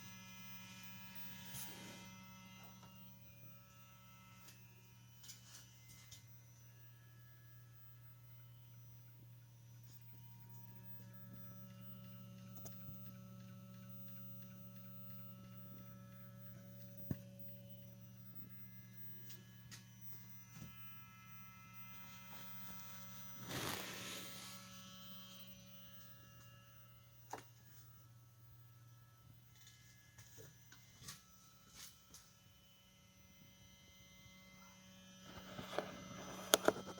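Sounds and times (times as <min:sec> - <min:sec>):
gearbox unit humming: 0:00.0 - 0:36.9.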